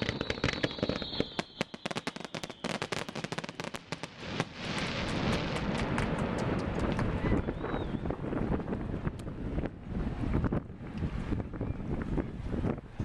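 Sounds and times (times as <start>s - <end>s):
faint high whistle: 0.0s - 3.1s, 7.2s - 8.1s
fireworks crackling: 0.0s - 11.2s
steady rushing noise: 4.1s - 13.0s.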